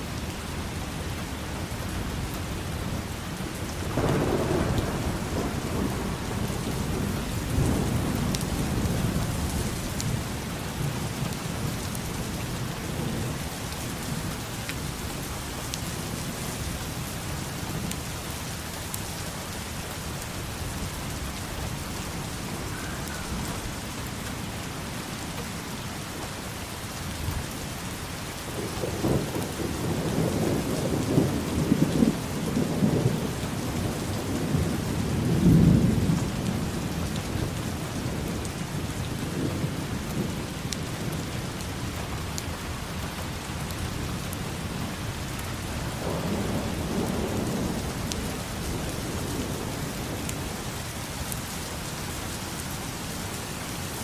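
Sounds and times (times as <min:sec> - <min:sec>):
rain falling: 0:00.0 - 0:54.0
rolling crackling thunder: 0:02.1 - 0:18.0, 0:28.4 - 0:52.0.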